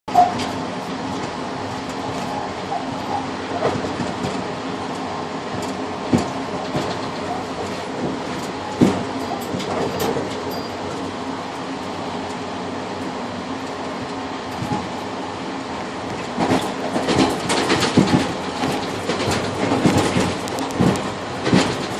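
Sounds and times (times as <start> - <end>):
train rumbling from inside: 0.1 - 21.9
wheel clicks and knocks: 16.4 - 21.9.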